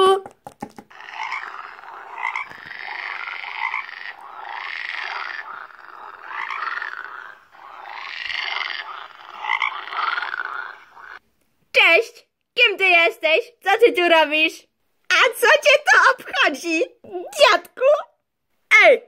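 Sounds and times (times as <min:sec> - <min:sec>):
frog croaking: 0:00.9 - 0:11.2.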